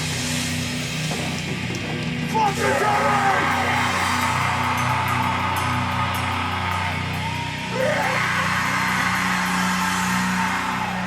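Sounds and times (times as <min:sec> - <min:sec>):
person shouting vocal: 0:02.3 - 0:04.0, 0:07.7 - 0:09.2.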